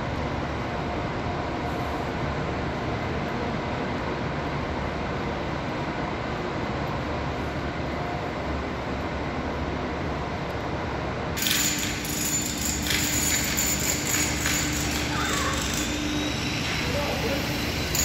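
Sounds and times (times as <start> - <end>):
steady hum: 13.7 - 18.0
bright hissy noise: 15.0 - 18.0.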